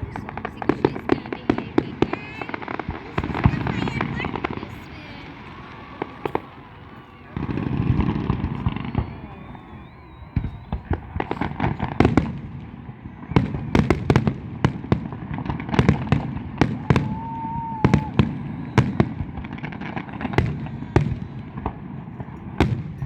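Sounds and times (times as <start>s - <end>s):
firework whistling: 0.0s - 23.0s
fireworks exploding: 0.0s - 23.0s.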